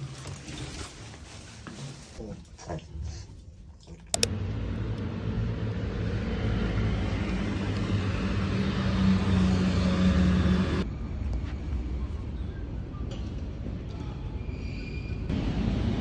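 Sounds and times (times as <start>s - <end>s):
vehicle engine running: 4.2s - 10.8s.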